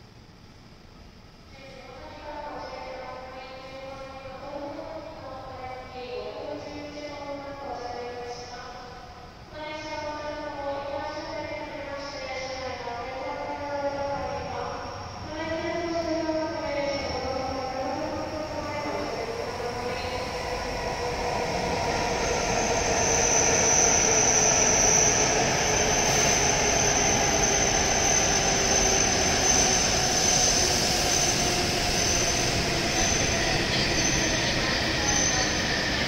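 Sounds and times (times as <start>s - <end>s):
train running noise: 9.3s - 36.0s.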